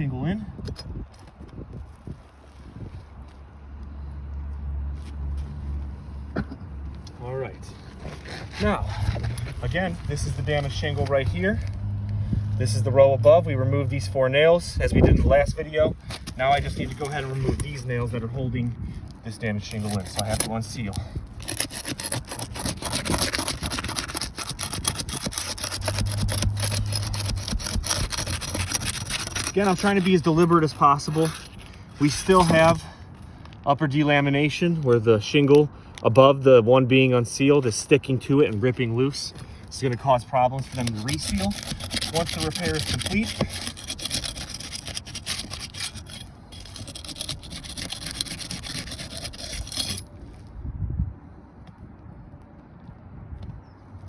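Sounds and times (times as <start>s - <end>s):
metal bar scraping roof shingles: 21.4s - 32.9s, 40.4s - 50.0s.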